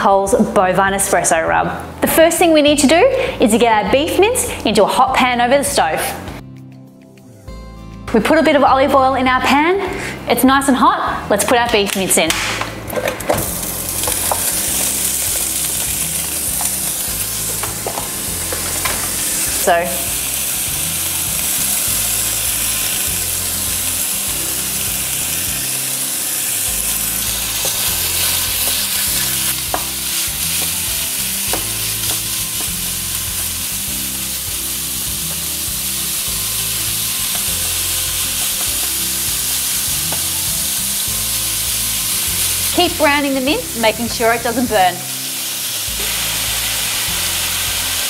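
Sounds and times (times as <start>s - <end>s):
meat sizzling in a frying pan: 13.4s - 48.0s.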